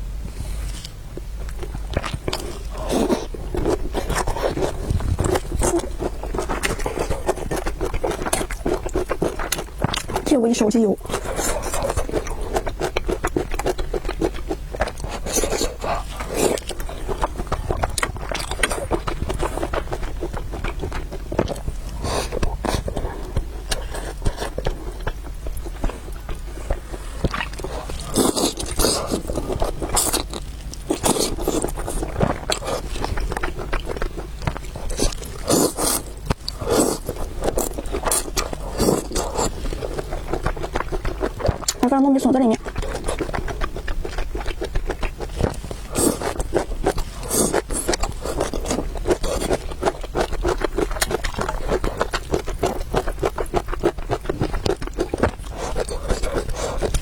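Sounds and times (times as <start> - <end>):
low steady hum: 0.0 - 57.0
wet chewing: 0.8 - 57.0
slurping noodles: 26.7 - 33.9, 34.8 - 41.7.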